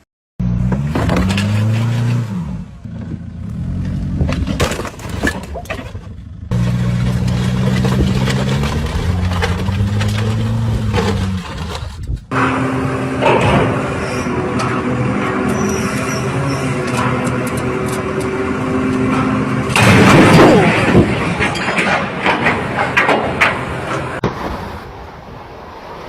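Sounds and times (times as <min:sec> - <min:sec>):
car engine running: 0:05.8 - 0:21.4
car crash impact: 0:19.7 - 0:23.6.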